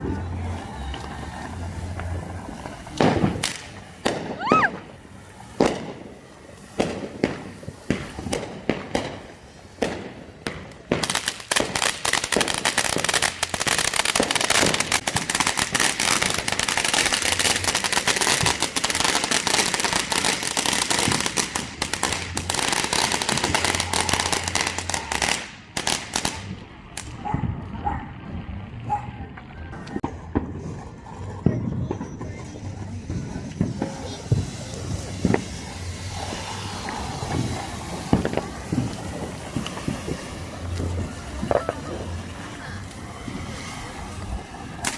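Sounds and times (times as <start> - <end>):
firecrackers banging and crackling: 0.0 - 44.9
firework whistle: 0.1 - 5.0, 16.1 - 25.5, 33.2 - 44.9.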